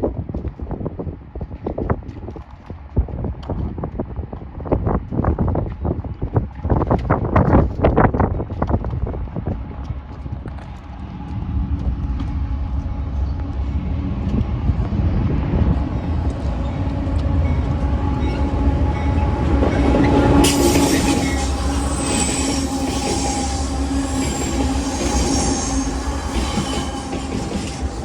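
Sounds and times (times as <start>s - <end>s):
freight train passing: 9.5s - 28.0s
high-pitched noise: 16.2s - 28.0s.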